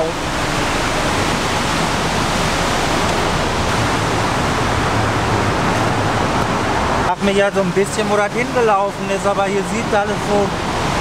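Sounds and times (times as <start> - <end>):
heavy downpour: 0.0 - 11.0.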